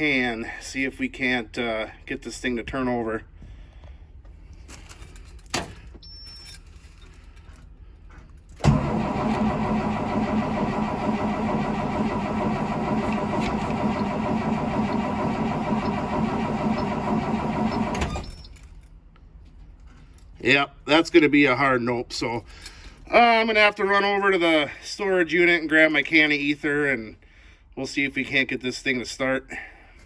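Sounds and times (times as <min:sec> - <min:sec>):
diesel engine cranking by starter: 0:08.6 - 0:18.4.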